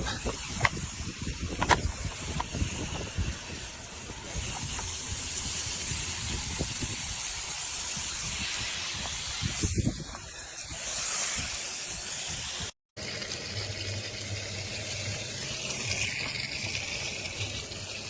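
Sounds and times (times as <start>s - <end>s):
steady rushing hiss: 0.0s - 12.8s.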